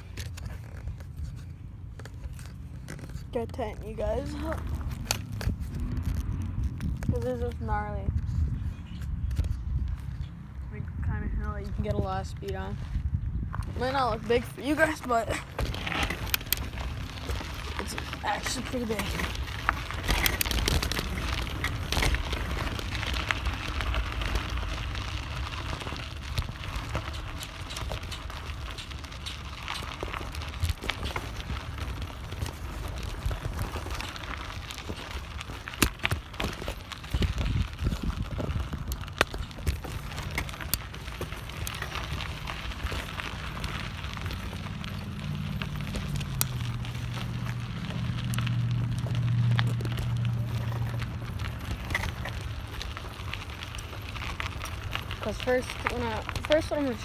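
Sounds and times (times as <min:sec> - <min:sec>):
bicycle tyres clicking and knocking: 0:00.0 - 0:57.0
wind on microphone: 0:04.3 - 0:14.6, 0:37.0 - 0:40.0.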